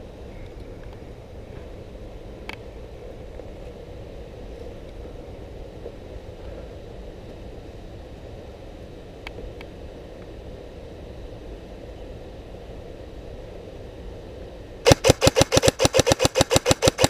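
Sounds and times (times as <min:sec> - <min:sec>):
sharp clicks: 0:14.9 - 0:17.0.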